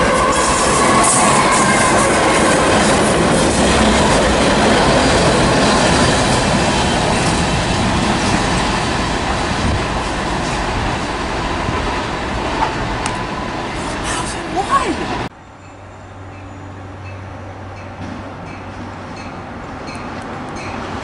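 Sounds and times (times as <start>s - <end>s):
locomotive engines rumbling: 0.0s - 21.0s.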